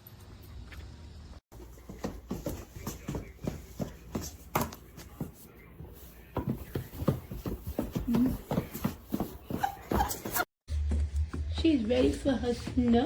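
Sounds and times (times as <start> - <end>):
dog boots tapping on hard floor: 6.4 - 13.0.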